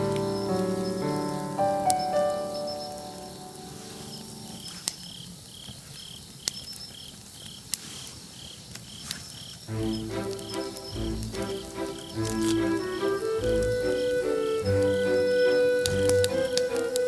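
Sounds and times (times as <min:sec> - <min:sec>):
insect chirping: 0:00.0 - 0:16.9
campfire crackling pops: 0:15.8 - 0:17.0.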